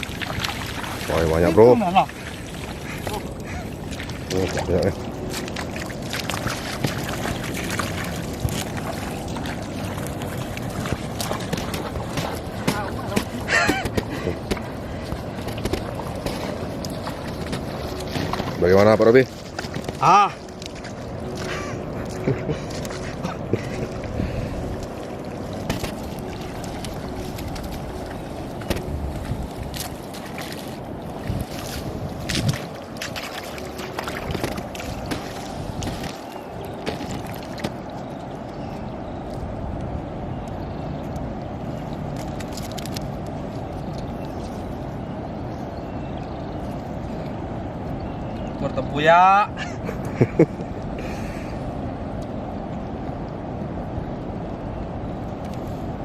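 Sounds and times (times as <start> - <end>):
small sharp splashes: 0.0 - 23.1, 29.7 - 38.0
shallow water splashing: 0.0 - 39.2
wind buffeting microphone: 0.0 - 42.5.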